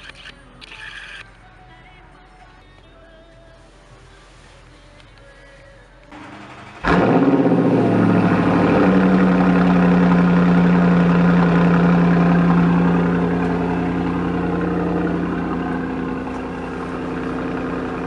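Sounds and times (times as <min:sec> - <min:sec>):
car engine starting and idling: 0:06.1 - 0:18.0.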